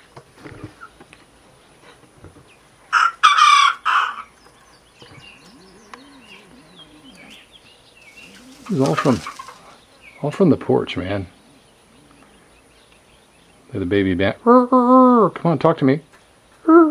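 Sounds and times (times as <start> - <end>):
rooster crowing: 2.9 - 4.3, 5.4 - 7.4
faint bird chirps: 4.3 - 13.9.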